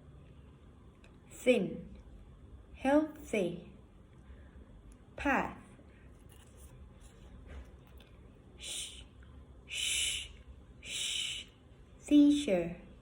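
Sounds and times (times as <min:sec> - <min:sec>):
person hissing a fricative: 0:08.6 - 0:09.1, 0:09.7 - 0:11.6.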